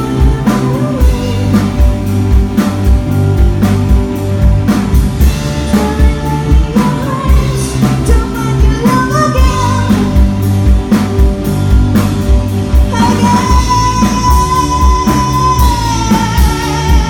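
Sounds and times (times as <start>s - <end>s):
person singing: 0.0s - 2.2s, 5.6s - 10.5s, 12.8s - 17.0s
rock song: 0.0s - 17.0s.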